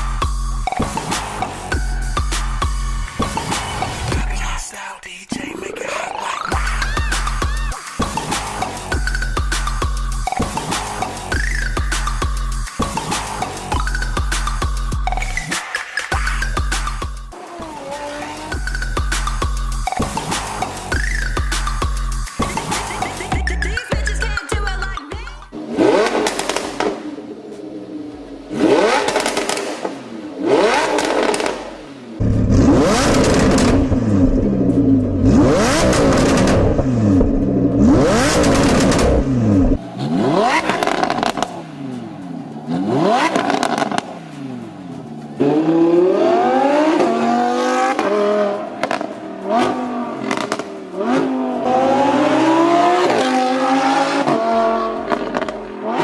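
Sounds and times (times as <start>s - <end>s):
car accelerating: 5.8s - 24.3s, 25.5s - 56.0s
sports car engine revving: 16.2s - 24.3s, 25.5s - 56.0s.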